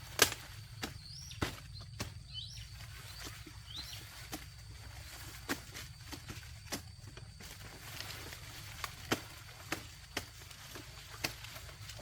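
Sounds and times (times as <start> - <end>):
cane stalks snapping: 0.0 - 12.0
dry cane leaves rustling: 0.0 - 12.0.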